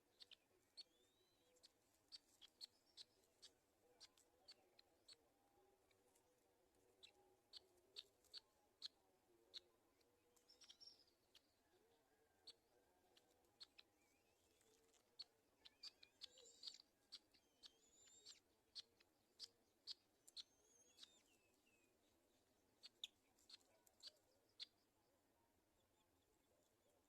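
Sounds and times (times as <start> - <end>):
faint bird chips: 0.0 - 24.9
thin gliding bird chirps: 0.0 - 27.0.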